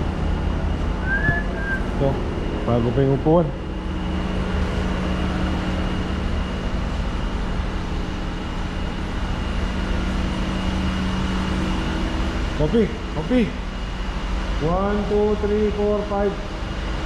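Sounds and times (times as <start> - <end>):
machine humming: 0.1 - 3.0
faint high whine: 1.0 - 3.0.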